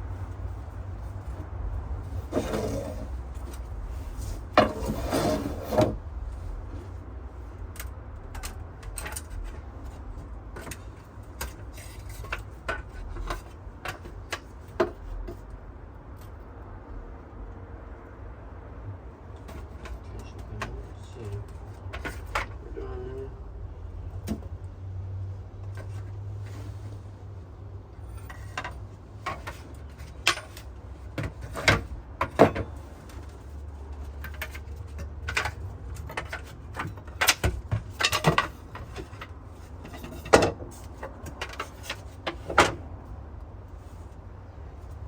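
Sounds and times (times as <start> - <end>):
low steady rumble: 0.0 - 45.0
wooden knocks and scrapes: 0.1 - 7.1, 21.4 - 22.6, 28.0 - 43.0.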